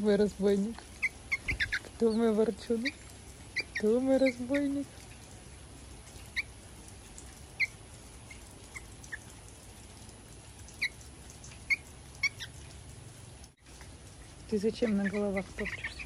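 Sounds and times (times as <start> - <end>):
fledglings chirping: 0.1 - 5.2, 10.7 - 12.6, 14.2 - 16.0.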